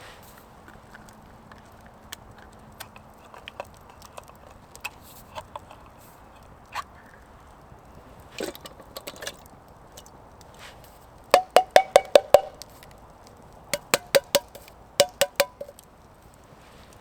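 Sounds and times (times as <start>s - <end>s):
sharp ringing knocks: 11.4s - 12.6s, 13.8s - 15.8s.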